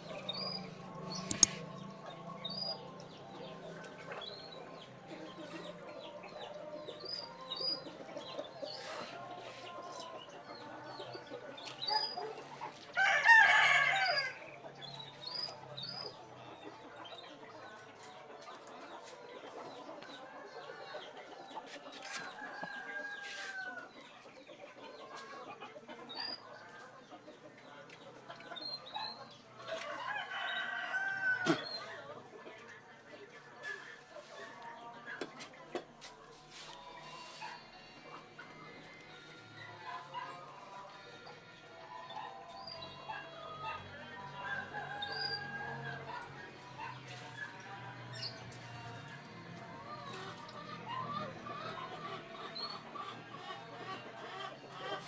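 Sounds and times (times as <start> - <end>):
small birds chirping: 0.0 - 55.0
rooster crowing: 13.0 - 14.4.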